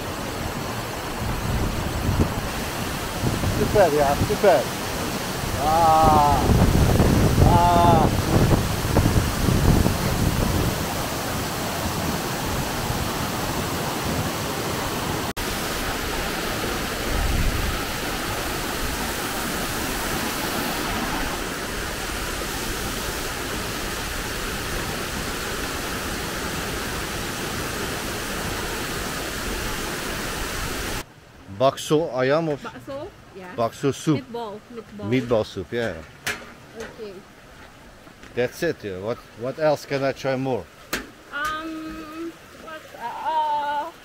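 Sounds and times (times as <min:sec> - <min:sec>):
waterfall pouring: 0:00.0 - 0:31.1.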